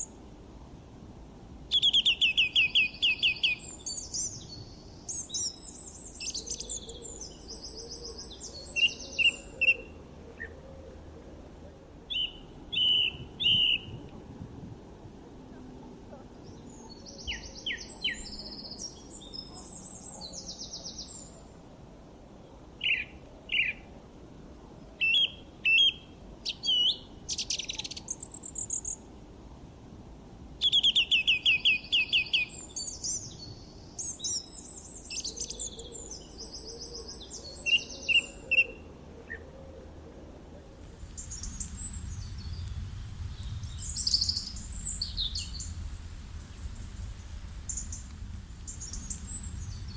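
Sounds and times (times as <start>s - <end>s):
low steady rumble: 40.4s - 49.9s
birds chirping and singing: 43.4s - 45.8s.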